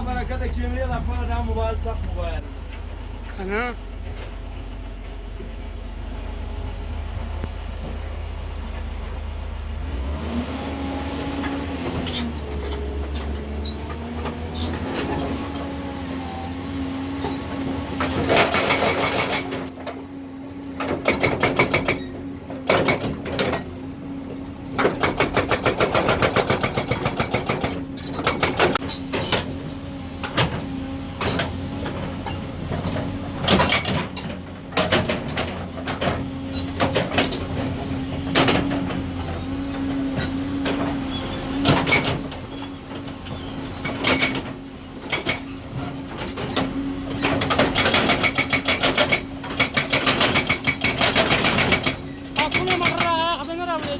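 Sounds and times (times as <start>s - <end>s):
excavator engine humming: 0.0s - 53.9s
hydraulic breaker hammering: 18.0s - 19.7s, 20.8s - 23.6s, 24.8s - 29.6s, 46.2s - 53.9s.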